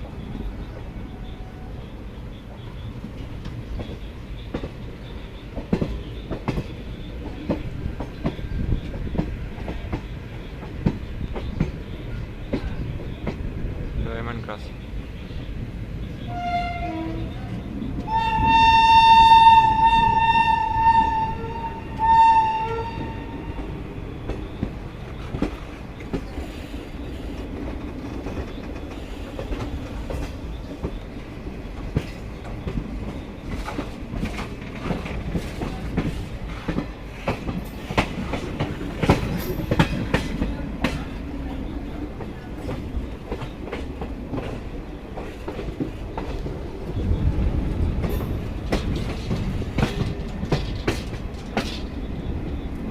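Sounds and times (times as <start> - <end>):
train wheels clicking over rail joints: 2.4 - 14.3, 15.3 - 52.9
train horn blasts: 16.2 - 23.7.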